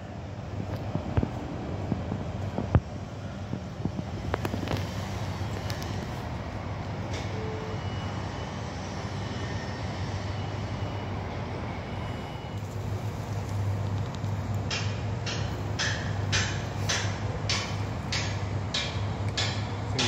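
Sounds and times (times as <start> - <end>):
construction machinery rumble: 0.0 - 20.0
wind: 0.0 - 20.0
sharp metallic knocks: 14.6 - 20.0.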